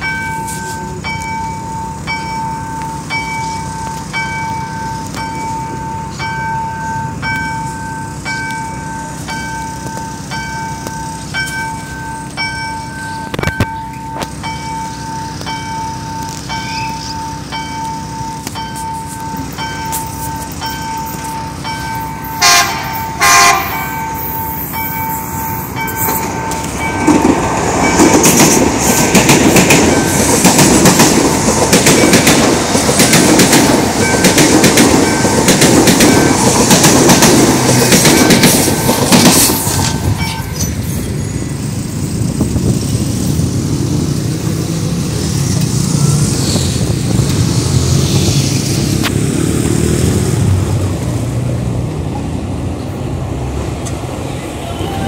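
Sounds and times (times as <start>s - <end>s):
level-crossing warning signal: 0.0s - 42.1s
train wheels rattling over rails: 0.0s - 55.0s
train horn blasts: 22.2s - 24.7s.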